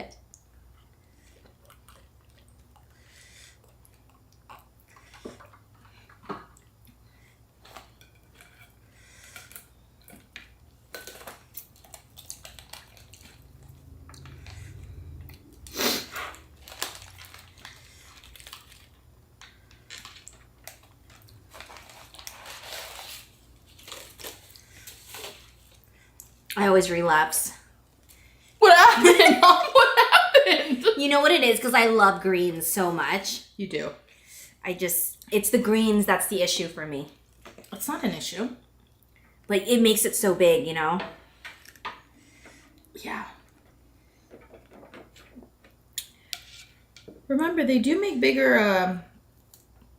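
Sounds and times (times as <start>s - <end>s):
chewing and biting food: 0.8s - 3.0s, 9.2s - 15.6s.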